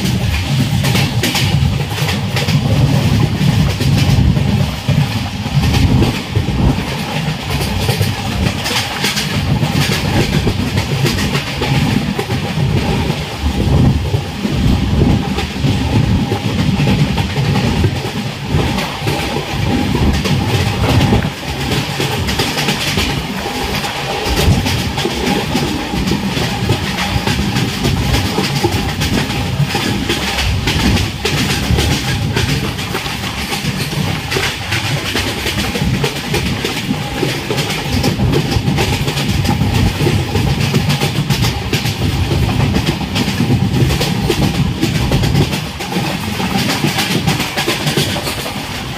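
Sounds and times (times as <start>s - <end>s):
train wheels rumbling on rails: 0.0s - 48.9s
clicks and rattles: 15.3s - 48.9s.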